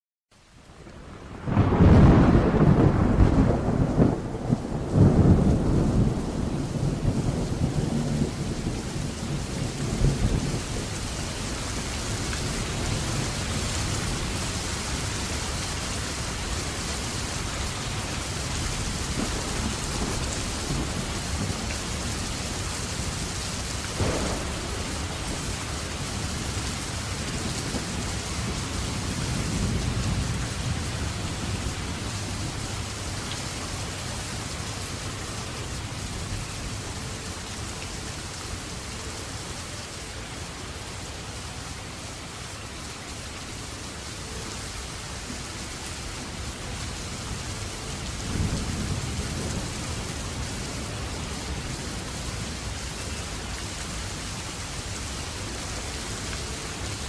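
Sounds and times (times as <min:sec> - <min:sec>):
heavy rain falling: 0:00.4 - 0:57.0
thunder rolling: 0:01.2 - 0:08.6, 0:24.0 - 0:32.6
sharp thunder crack: 0:01.4 - 0:06.1, 0:24.0 - 0:25.6.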